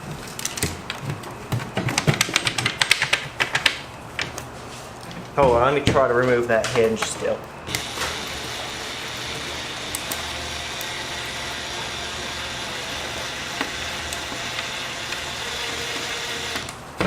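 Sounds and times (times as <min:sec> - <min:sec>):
small electric motor whining: 0:07.7 - 0:16.8.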